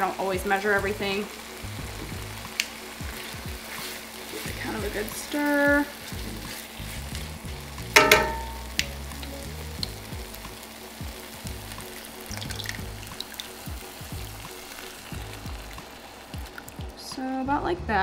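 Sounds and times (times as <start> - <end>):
sauce sizzling in a skillet: 0.0 - 18.0
loud metallic clank: 8.0 - 8.8.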